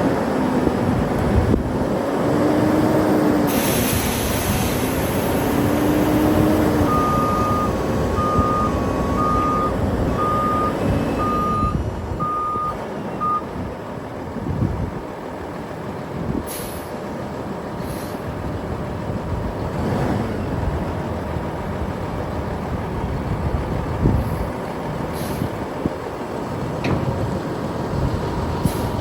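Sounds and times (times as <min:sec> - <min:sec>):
diesel engine running: 0:00.0 - 0:29.0
air hiss: 0:03.5 - 0:05.8, 0:16.5 - 0:17.0, 0:28.6 - 0:29.0
reverse alarm beeping: 0:06.8 - 0:13.5.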